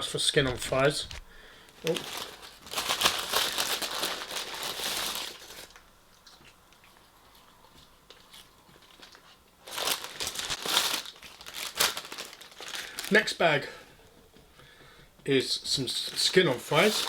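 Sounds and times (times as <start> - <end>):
plastic bags rustling and crinkling: 0.0 - 5.9, 8.8 - 13.5, 15.8 - 17.0.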